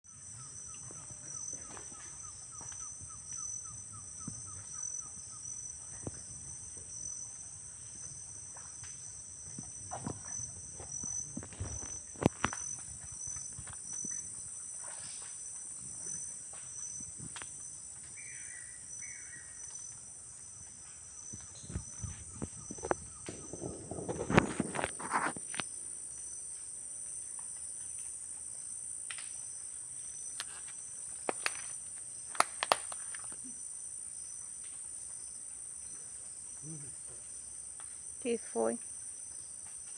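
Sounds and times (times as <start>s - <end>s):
insect trills: 0.1s - 39.9s
rustling: 30.0s - 33.5s
sharp clicks and knocks: 30.4s - 33.3s.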